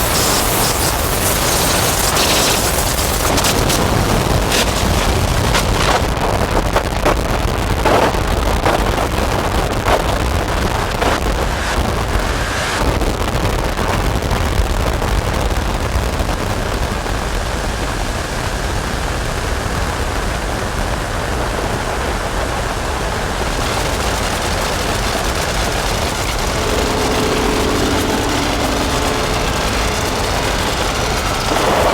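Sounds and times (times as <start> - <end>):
crackling hiss: 0.0 - 5.7, 25.3 - 31.9
distorted synthesizer noise drone: 25.3 - 31.9
steady rumble: 25.3 - 31.9.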